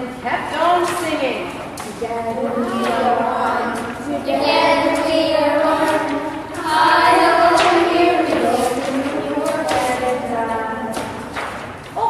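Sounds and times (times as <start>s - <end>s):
children singing: 2.1s - 11.3s.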